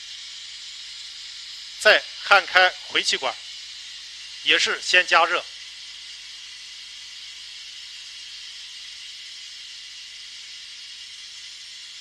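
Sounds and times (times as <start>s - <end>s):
brazing torch hissing: 0.0s - 12.0s.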